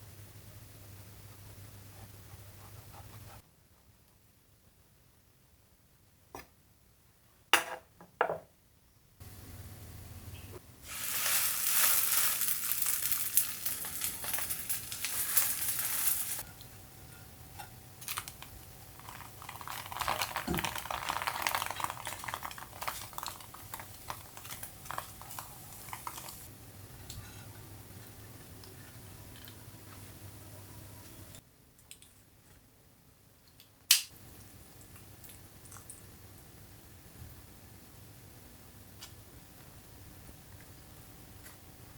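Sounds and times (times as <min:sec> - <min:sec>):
food sizzling in a pan: 0:10.8 - 0:16.6, 0:19.0 - 0:26.5.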